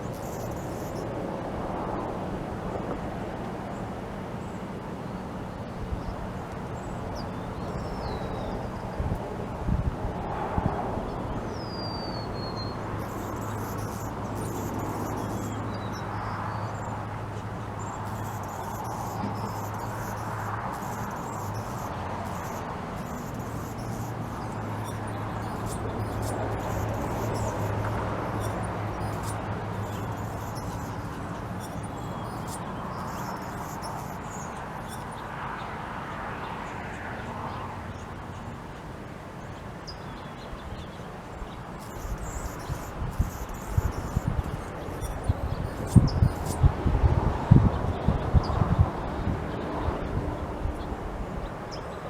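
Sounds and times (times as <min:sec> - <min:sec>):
small birds chirping: 0:00.0 - 0:01.0, 0:05.9 - 0:09.2, 0:10.6 - 0:35.7, 0:39.4 - 0:48.9.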